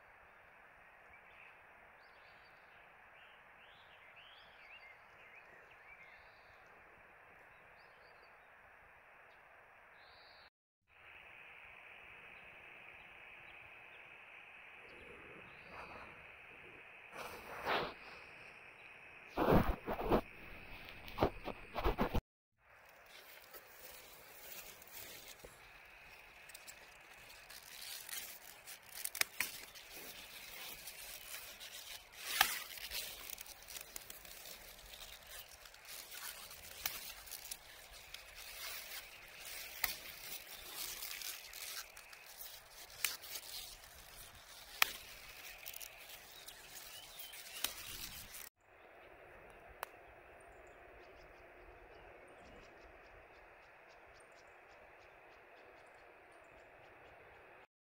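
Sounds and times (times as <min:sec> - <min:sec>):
fire hissing: 0:11.3 - 0:21.2, 0:23.0 - 0:48.5
bonfire crackling and popping: 0:23.1 - 0:48.5.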